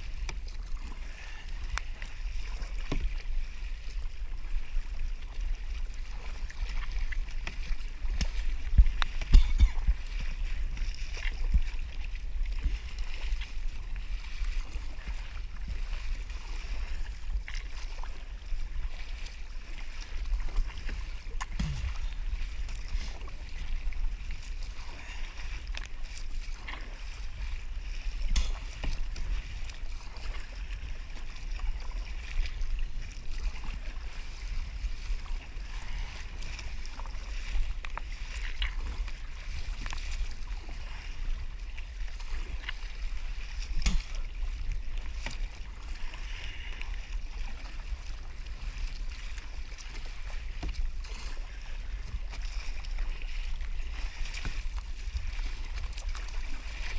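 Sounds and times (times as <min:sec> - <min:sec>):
water lapping against hull: 0:00.0 - 0:56.9
wind rumbling on microphone: 0:00.0 - 0:56.9.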